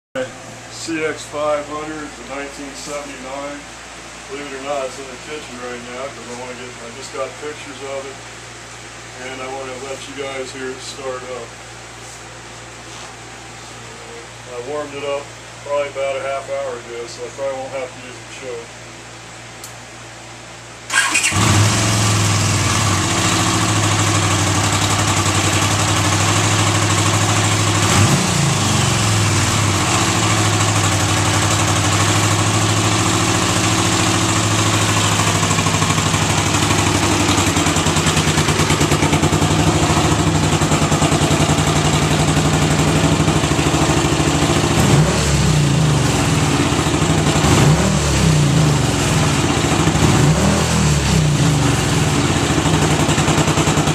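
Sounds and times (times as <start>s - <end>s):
motorcycle engine idling: 20.9s - 45.0s, 45.6s - 47.6s, 48.4s - 50.1s, 50.9s - 53.9s
motorcycle engine revving: 20.9s - 53.9s
motorcycle engine starting: 20.9s - 53.9s.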